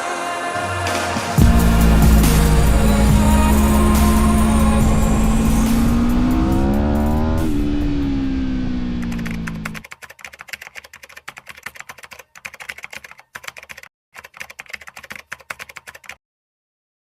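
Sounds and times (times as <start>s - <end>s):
loud motorcycle engine: 1.4s - 9.8s
keyboard typing clicks: 9.1s - 16.2s.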